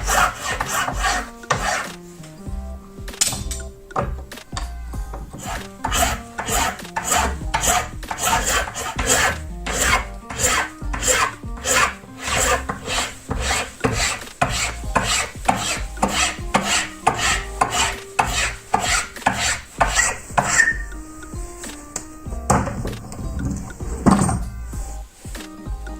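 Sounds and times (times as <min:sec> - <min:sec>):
abrasive tool rasping on knife: 0:00.0 - 0:02.0, 0:05.2 - 0:21.1.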